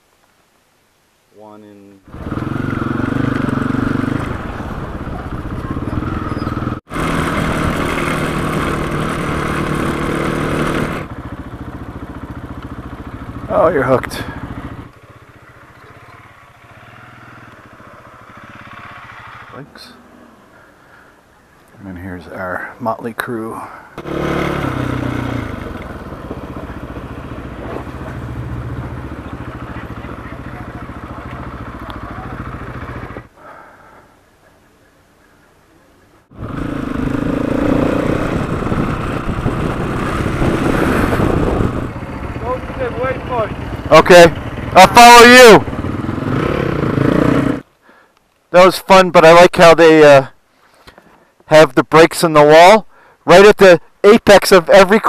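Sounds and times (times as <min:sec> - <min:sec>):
motorcycle engine running: 0:02.1 - 0:20.8, 0:24.0 - 0:33.4, 0:36.3 - 0:47.7.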